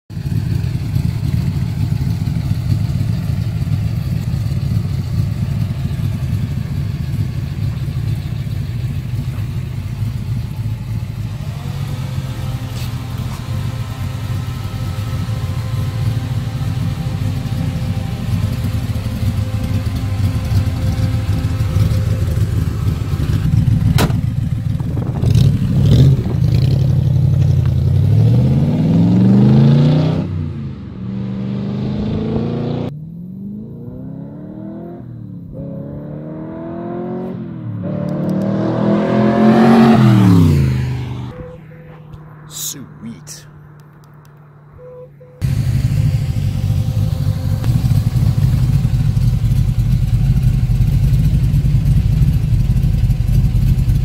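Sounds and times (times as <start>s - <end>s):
car engine idling: 0.1s - 28.2s, 39.4s - 54.0s
car engine revving and accelerating: 10.5s - 42.6s.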